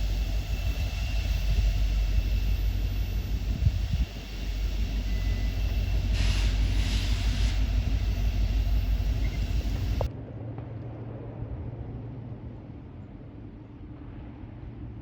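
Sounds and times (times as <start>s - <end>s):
brief hiss: 0.0s - 10.1s
freight train rumbling past: 0.0s - 15.0s.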